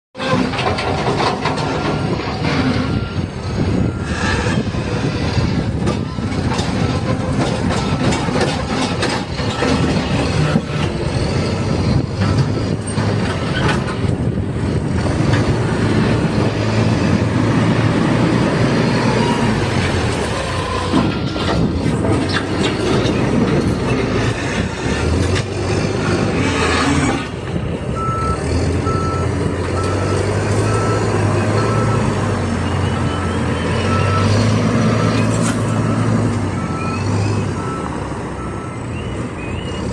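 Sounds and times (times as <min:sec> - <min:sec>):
diesel engine working under load: 0:00.2 - 0:39.9
reversing alarm beeping: 0:01.8 - 0:05.0, 0:28.0 - 0:39.9.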